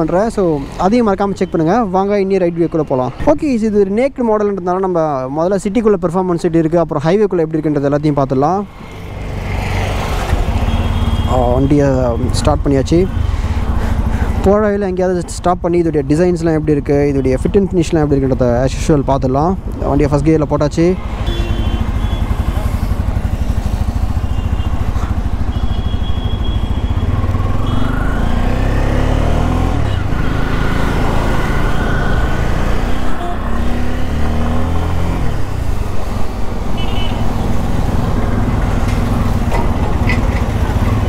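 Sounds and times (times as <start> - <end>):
motorcycle engine accelerating: 21.3 - 41.0.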